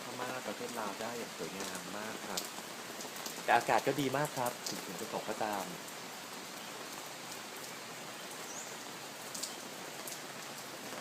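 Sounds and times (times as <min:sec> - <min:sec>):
steady rain hiss: 0:00.0 - 0:11.0
sharp drip ticks: 0:09.3 - 0:10.2.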